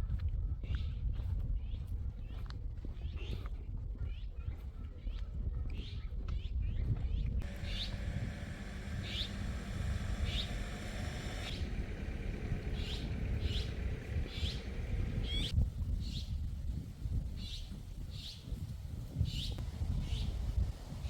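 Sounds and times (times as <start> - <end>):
bird chirping: 7.4 - 15.5
steady low rumble: 7.4 - 15.6.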